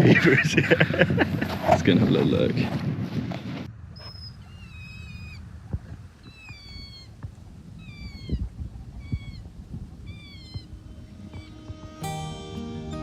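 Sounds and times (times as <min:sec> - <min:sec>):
high falling whistled animal calls: 0:04.0 - 0:05.5, 0:06.2 - 0:07.2, 0:07.8 - 0:11.7.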